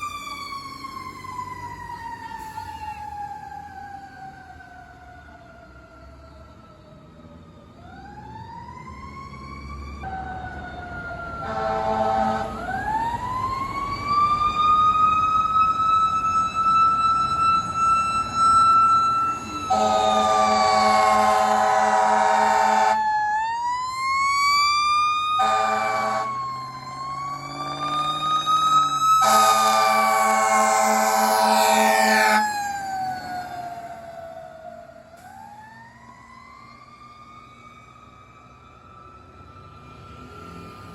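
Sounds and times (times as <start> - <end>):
fire engine mechanical siren: 0.0 - 40.9
air horn blasts: 11.4 - 12.6, 19.7 - 23.0, 25.4 - 26.3, 29.2 - 32.4.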